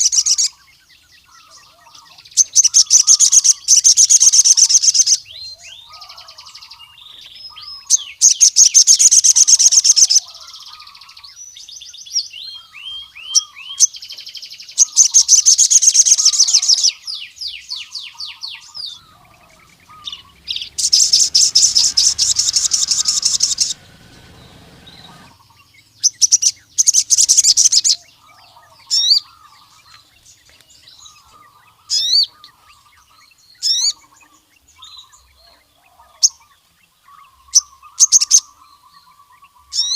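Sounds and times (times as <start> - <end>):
sunbird singing high trills: 0.0 - 39.9
fainter lower bird chirps: 11.5 - 35.3.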